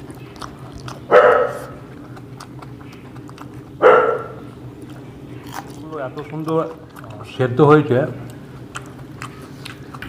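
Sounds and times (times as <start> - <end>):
dog barking: 1.1 - 1.9, 3.8 - 4.5.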